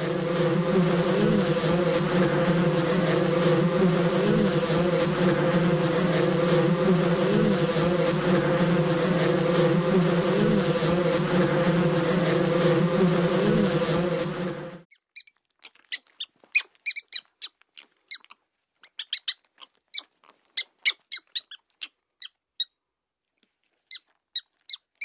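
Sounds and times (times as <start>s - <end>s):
swarm of wasps buzzing: 0.0s - 14.9s.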